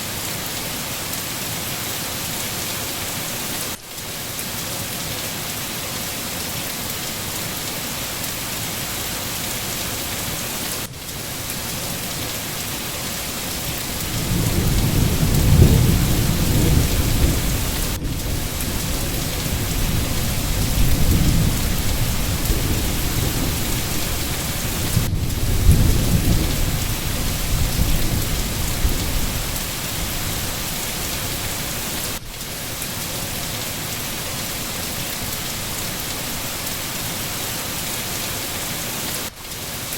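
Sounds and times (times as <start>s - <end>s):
steady rain falling: 0.0s - 39.9s
low thunder rumbling: 13.4s - 31.9s.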